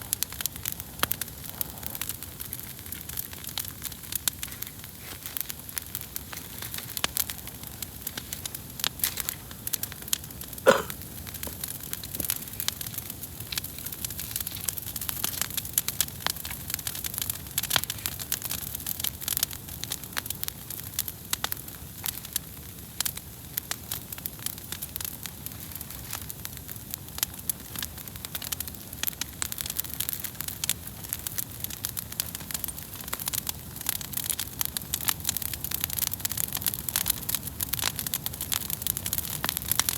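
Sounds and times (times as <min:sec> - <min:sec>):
campfire crackling: 0:00.0 - 0:39.9
steady fire hiss: 0:00.0 - 0:39.9.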